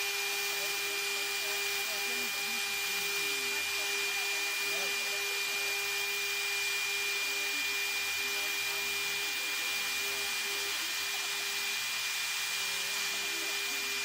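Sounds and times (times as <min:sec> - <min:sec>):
router spindle whine: 0:00.0 - 0:14.0.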